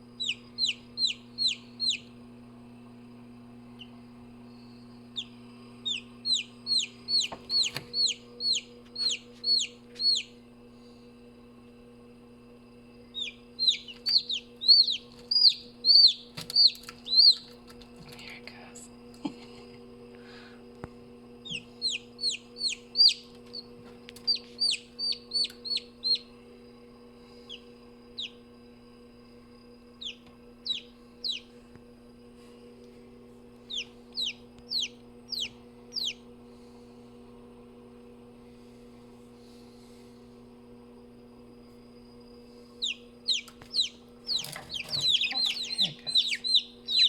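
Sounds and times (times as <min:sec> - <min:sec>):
low hum: 0:00.0 - 0:47.0
chicks peeping: 0:00.2 - 0:02.1, 0:05.2 - 0:10.3, 0:13.1 - 0:17.8, 0:21.4 - 0:26.3, 0:28.2 - 0:28.4, 0:30.0 - 0:31.5, 0:33.7 - 0:36.2, 0:42.8 - 0:47.0.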